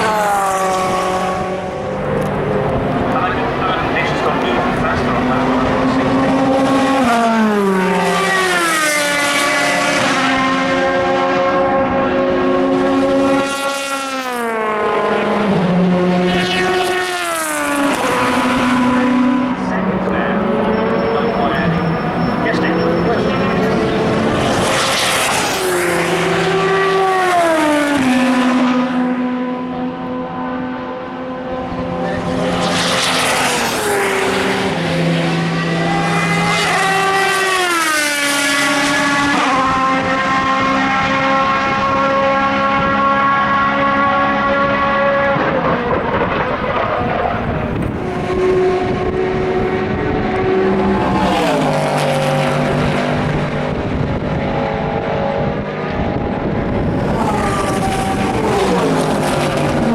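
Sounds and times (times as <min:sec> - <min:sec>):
race car engines running: 0:00.0 - 0:59.9.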